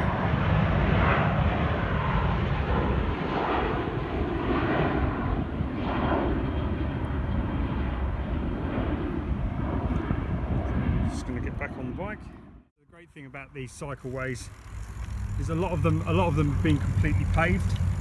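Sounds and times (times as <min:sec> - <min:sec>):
airliner engines roaring on takeoff: 0:00.0 - 0:12.6, 0:13.4 - 0:18.0.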